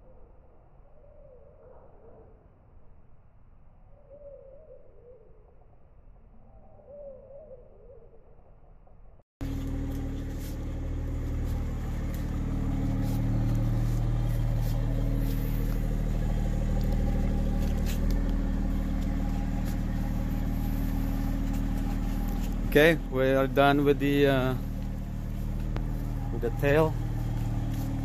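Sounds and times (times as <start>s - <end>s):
car engine idling: 9.4s - 28.0s.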